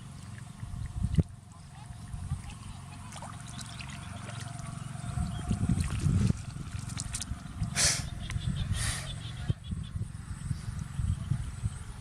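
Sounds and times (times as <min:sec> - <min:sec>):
water trickling and splashing: 0:00.0 - 0:08.5.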